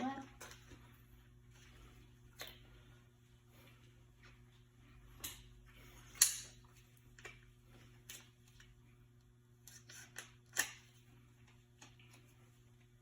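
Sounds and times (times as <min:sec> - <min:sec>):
faint steady hum: 0:00.0 - 0:13.0
tools clicking and tapping: 0:06.1 - 0:07.5.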